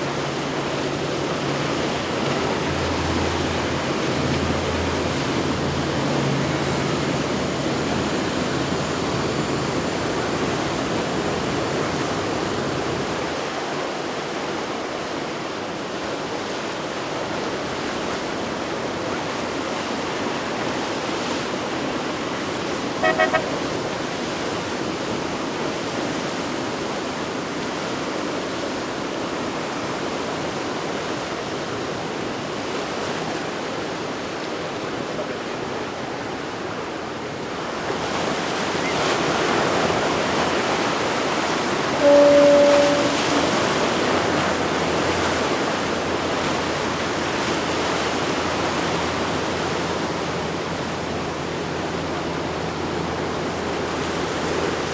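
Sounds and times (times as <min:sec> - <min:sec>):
waves rushing: 0:00.0 - 0:15.1, 0:22.8 - 0:24.3, 0:37.4 - 0:54.9
boat engine hum: 0:00.0 - 0:25.7, 0:35.6 - 0:54.9
wind: 0:00.0 - 0:54.9
horn short toots: 0:23.0 - 0:23.8, 0:41.7 - 0:45.2.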